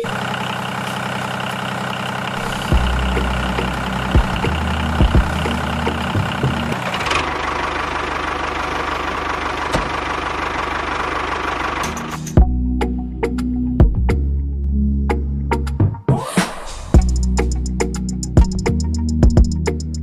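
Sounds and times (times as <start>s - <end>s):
motor running: 0.0s - 12.4s.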